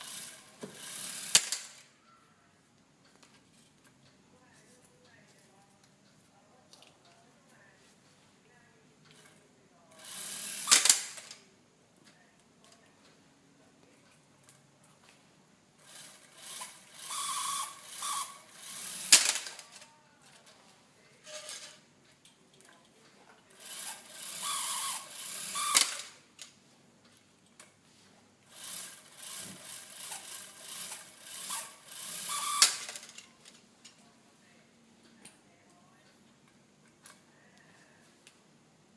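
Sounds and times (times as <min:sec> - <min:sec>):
model rotor mechanism rattling: 0:00.0 - 0:01.9, 0:09.1 - 0:11.4, 0:15.8 - 0:20.6, 0:21.2 - 0:21.9, 0:23.5 - 0:26.2, 0:28.5 - 0:33.6.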